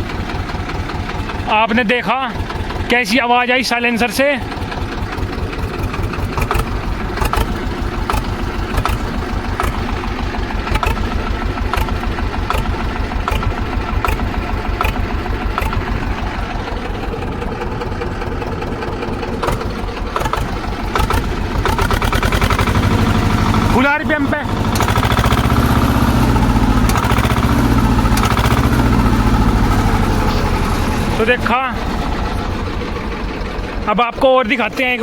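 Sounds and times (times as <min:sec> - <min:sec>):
tractor diesel engine running: 0:00.0 - 0:35.0
sharp clicks: 0:05.8 - 0:10.0, 0:10.6 - 0:16.1, 0:19.4 - 0:22.8, 0:24.7 - 0:25.6, 0:26.8 - 0:28.7.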